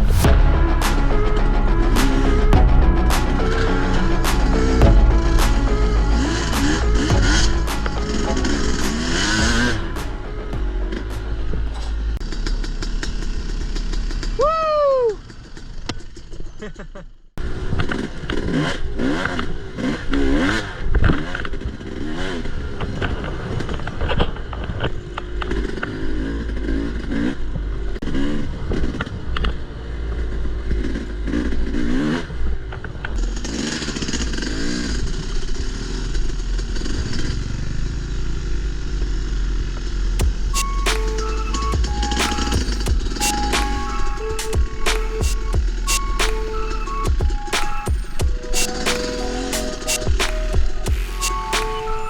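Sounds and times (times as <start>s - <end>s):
dirt bike engine revving: 0.0s - 14.4s, 17.4s - 52.0s.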